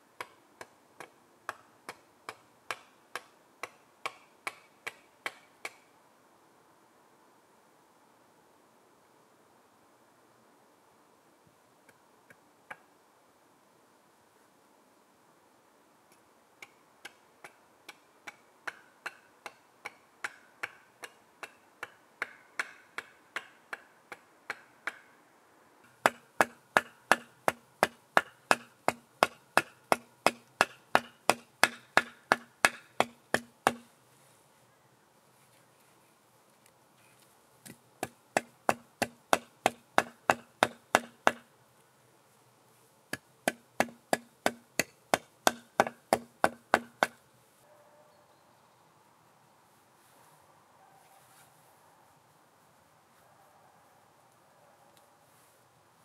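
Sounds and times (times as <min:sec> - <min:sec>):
tool knocking on wood: 0:43.5 - 0:47.2.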